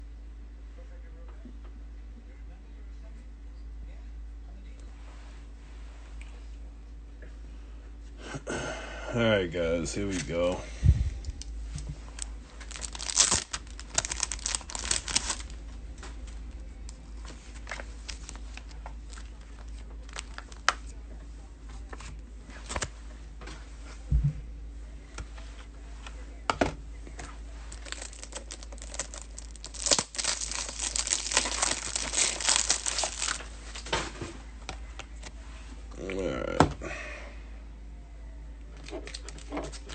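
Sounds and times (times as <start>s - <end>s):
plastic packaging tearing and crinkling: 12.1s - 15.6s, 17.5s - 20.8s, 27.7s - 33.9s.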